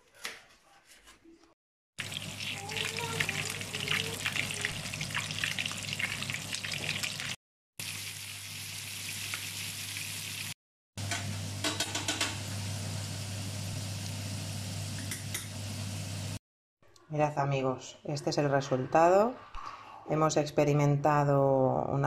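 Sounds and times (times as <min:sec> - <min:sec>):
food sizzling in hot oil: 0:02.0 - 0:16.4.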